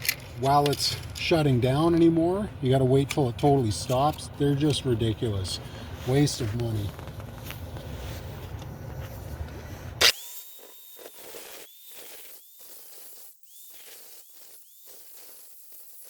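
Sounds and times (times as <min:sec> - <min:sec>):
angle grinder cutting steel: 0:10.0 - 0:16.0.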